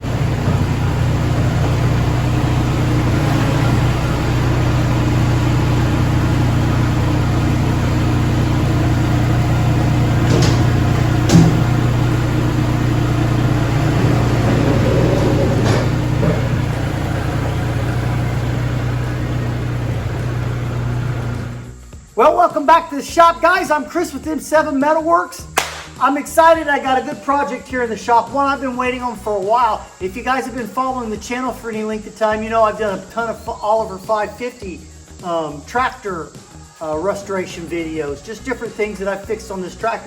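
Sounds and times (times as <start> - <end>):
engine running steadily: 0.0 - 21.8.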